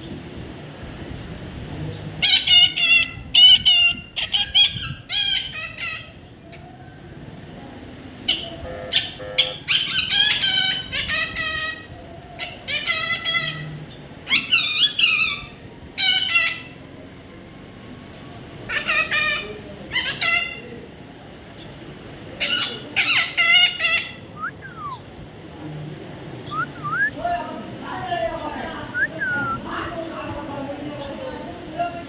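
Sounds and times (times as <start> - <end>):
baby parrot squawking: 2.2 - 6.2, 8.3 - 16.7, 18.7 - 20.6, 22.4 - 24.2.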